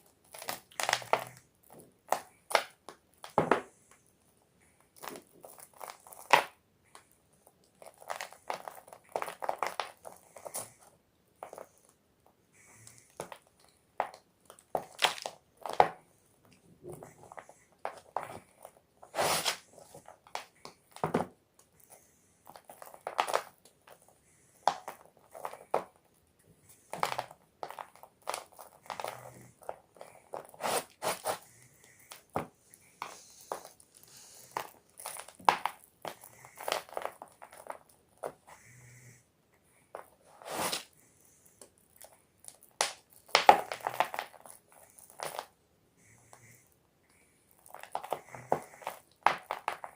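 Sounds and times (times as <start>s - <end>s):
chalk being crushed: 19.0s - 21.1s, 26.9s - 31.4s, 40.0s - 40.9s.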